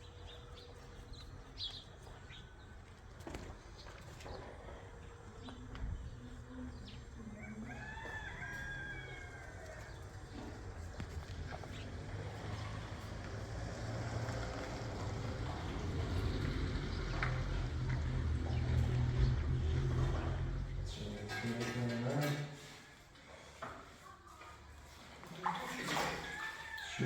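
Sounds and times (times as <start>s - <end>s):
rooster crowing: 7.2s - 10.2s, 26.1s - 27.0s
low rumble: 14.4s - 21.1s.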